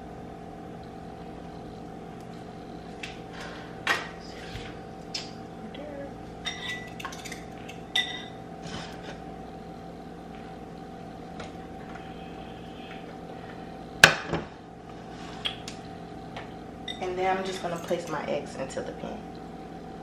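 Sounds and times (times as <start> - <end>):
steady hum: 0.0 - 20.0
cookware and utensils clattering: 6.4 - 9.2.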